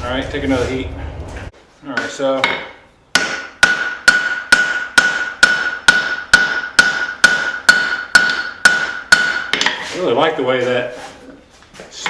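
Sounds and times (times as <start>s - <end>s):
anvil ringing: 2.0s - 9.8s
hammer striking steel on anvil: 2.0s - 9.8s.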